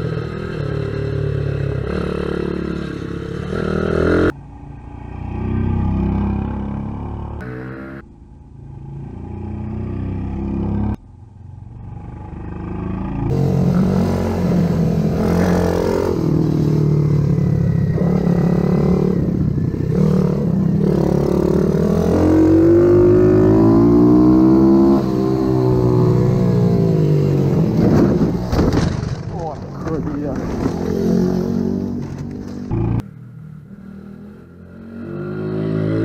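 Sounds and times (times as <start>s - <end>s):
pit bike engines revving: 12.3s - 28.5s.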